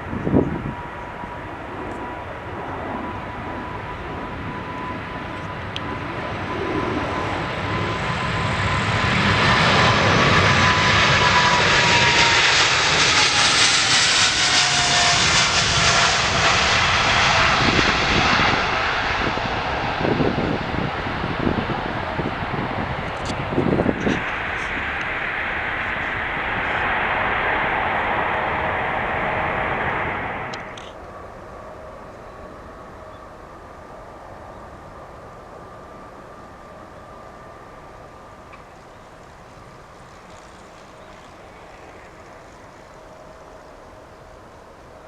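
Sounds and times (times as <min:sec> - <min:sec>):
jet engines roaring: 0:00.0 - 0:45.0
engine whining tone: 0:00.1 - 0:31.0.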